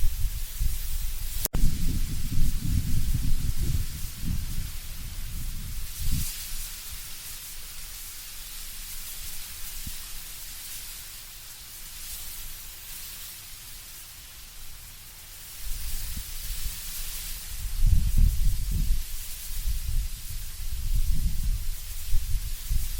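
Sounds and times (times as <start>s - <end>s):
low wind rumble: 0.0s - 6.4s, 15.7s - 22.9s
leaves rustling in wind: 0.0s - 22.9s.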